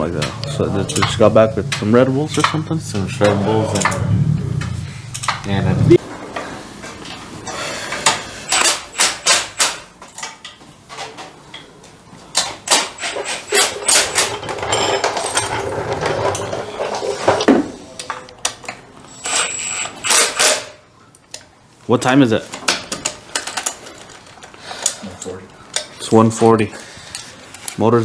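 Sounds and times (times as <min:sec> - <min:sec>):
hand tools clanking on metal: 0:00.0 - 0:05.8, 0:12.4 - 0:18.7.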